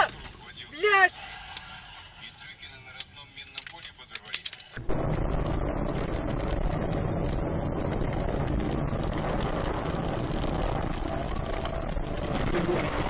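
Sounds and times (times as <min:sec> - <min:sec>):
road rumble: 0:00.0 - 0:13.0
vehicle engine: 0:03.6 - 0:13.0.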